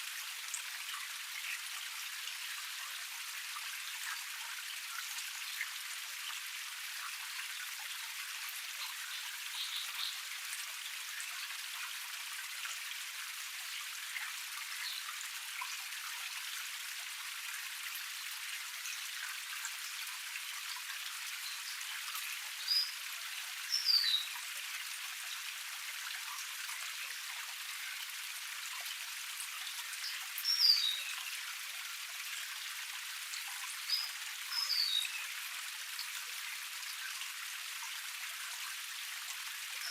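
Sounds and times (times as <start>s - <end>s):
bird chirps: 33.9s - 35.2s.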